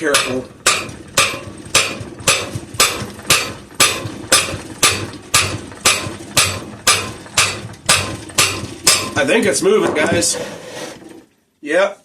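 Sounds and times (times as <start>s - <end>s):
hammer tapping on metal shaft: 0.0s - 9.2s.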